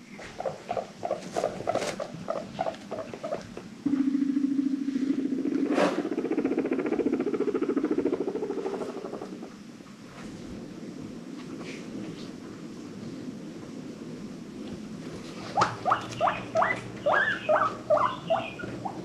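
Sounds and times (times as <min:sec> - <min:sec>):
guinea pig buzzing rumble: 0:00.2 - 0:09.6, 0:15.3 - 0:19.0
guinea pig chutting: 0:15.6 - 0:19.0.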